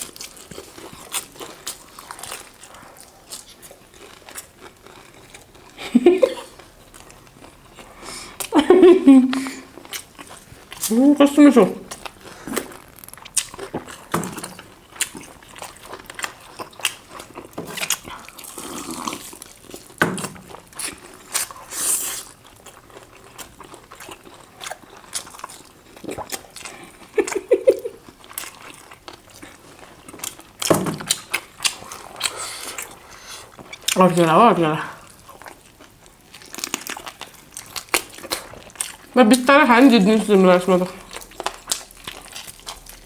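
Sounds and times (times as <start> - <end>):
people chewing chicken: 0.0 - 43.0
wet mouth clicks and smacks: 11.9 - 14.6.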